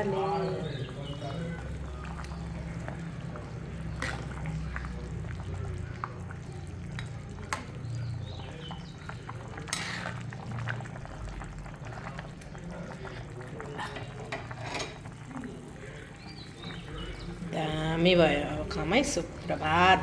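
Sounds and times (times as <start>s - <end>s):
wet sloshing of stirred curry: 0.7s - 17.5s
metal spoon scraping pot: 13.9s - 15.0s.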